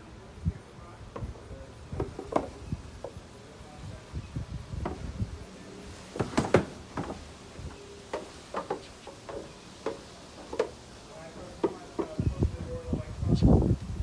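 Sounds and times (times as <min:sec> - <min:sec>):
sharp knocks and clatter: 0:06.2 - 0:07.2, 0:08.1 - 0:10.8, 0:11.6 - 0:12.2.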